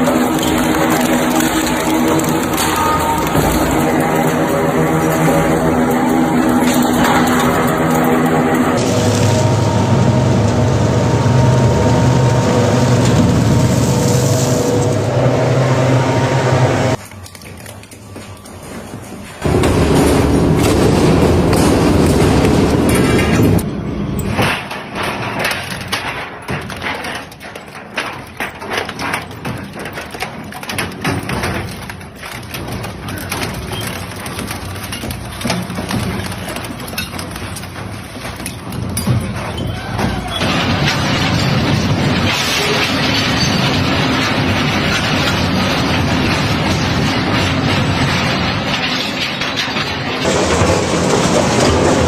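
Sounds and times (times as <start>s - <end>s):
crusher machine engine drone: 0.0s - 17.0s
shredding machine crushing: 0.0s - 52.0s.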